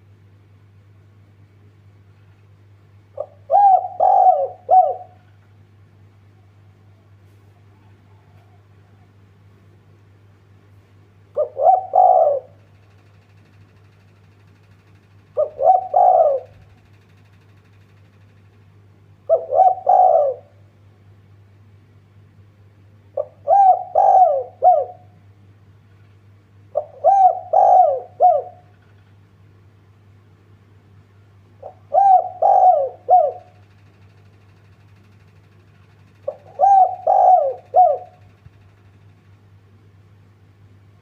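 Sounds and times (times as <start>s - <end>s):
faint low hum: 0.0s - 41.0s
dove cooing: 3.1s - 5.4s, 11.4s - 12.8s, 15.2s - 16.9s, 19.2s - 20.6s, 23.1s - 25.2s, 26.7s - 28.8s, 31.6s - 33.7s, 36.1s - 38.3s.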